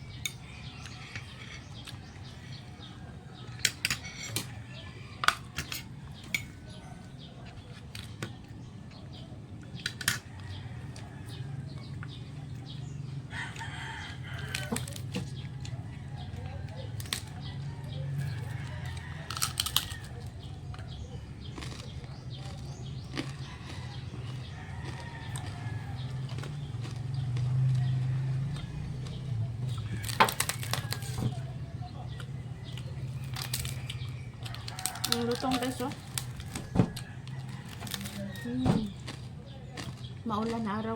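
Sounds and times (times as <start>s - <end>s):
crunching of crispy food: 0.0s - 40.9s
rooster crowing: 13.3s - 20.3s, 23.2s - 32.1s, 33.5s - 38.9s
mouth clicks and chewing: 18.2s - 31.2s, 32.1s - 40.7s.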